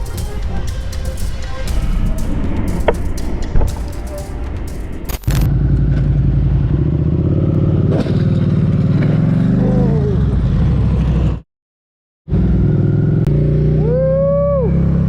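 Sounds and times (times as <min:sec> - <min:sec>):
motorcycle engine running: 0:00.0 - 0:11.4.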